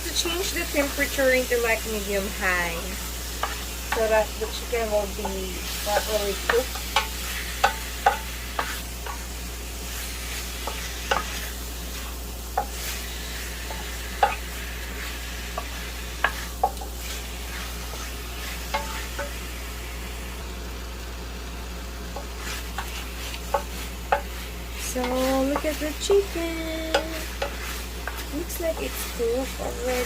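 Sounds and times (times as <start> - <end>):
chicken sizzling in pan: 0.0 - 30.0
utensil knocking against pan: 5.2 - 9.2.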